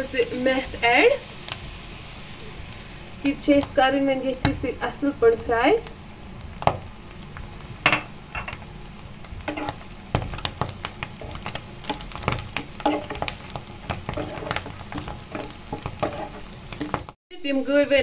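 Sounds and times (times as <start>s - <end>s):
leaves and onions sizzling in oil: 0.0s - 18.0s
metal spoon scraping a pan: 14.1s - 17.0s.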